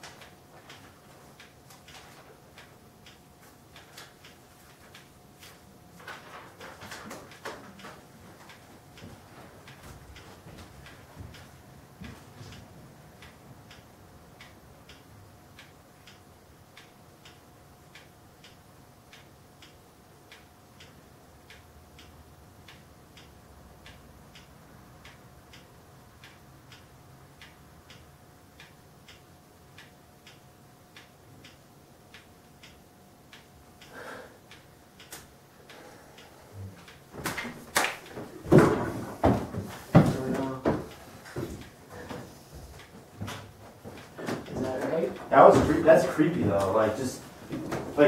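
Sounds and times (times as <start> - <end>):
clock ticking: 0.0 - 5.2, 7.3 - 37.1
faint steady hum: 0.0 - 48.0.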